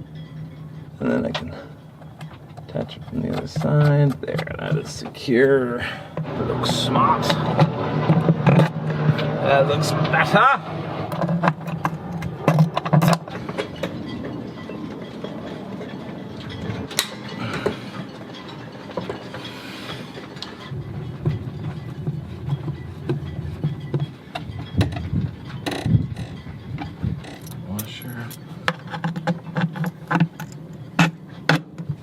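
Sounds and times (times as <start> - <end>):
hand tools clicking and knocking: 1.2 - 32.0
steady low hum: 5.8 - 28.6.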